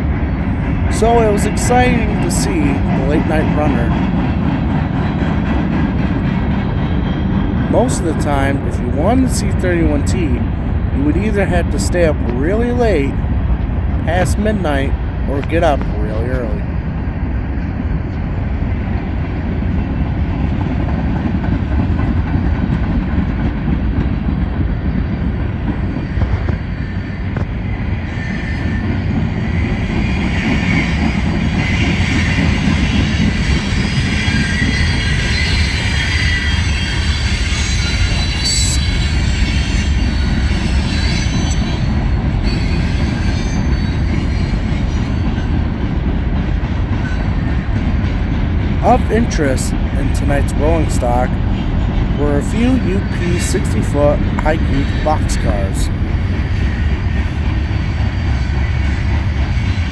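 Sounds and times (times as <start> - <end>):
train wheels rumbling on rail: 0.0 - 59.9
train wheel squeal: 5.2 - 7.7, 24.8 - 45.8, 56.0 - 59.9.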